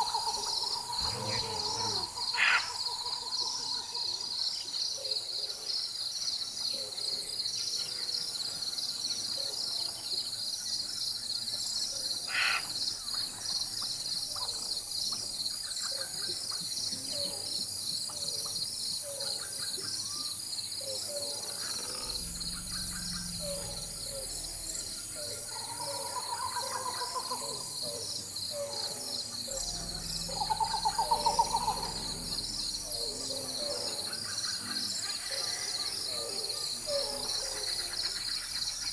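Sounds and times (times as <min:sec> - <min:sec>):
trilled bird call: 0:00.0 - 0:04.0, 0:29.1 - 0:34.4
bird calls: 0:00.0 - 0:05.2, 0:20.8 - 0:38.9
pulsing insect chorus: 0:00.0 - 0:38.9
distant thunder rumble: 0:29.5 - 0:33.6.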